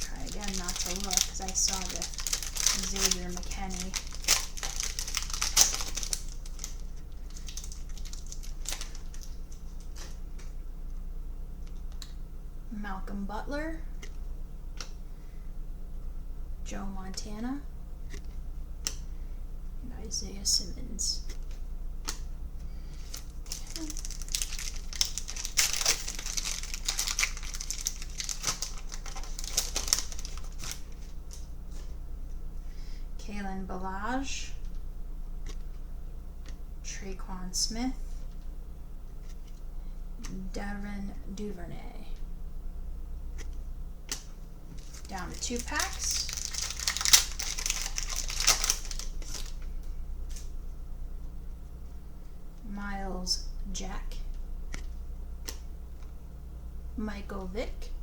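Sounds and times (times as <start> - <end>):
foil wrapper crinkling: 0.0 - 10.2, 22.9 - 31.4, 44.1 - 49.7.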